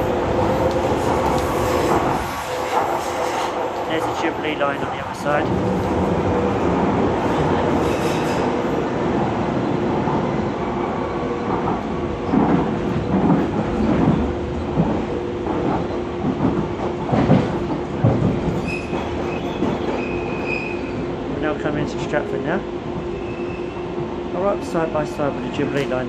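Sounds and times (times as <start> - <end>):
train running hum: 0.0 - 26.0.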